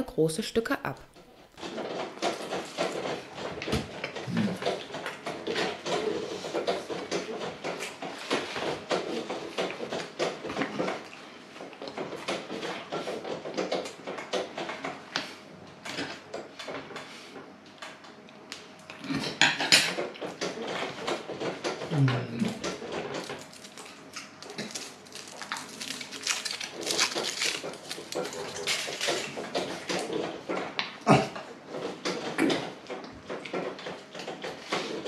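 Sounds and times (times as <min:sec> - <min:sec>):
crackly chewing: 0:22.5 - 0:31.5
person biting and chewing: 0:23.4 - 0:29.4.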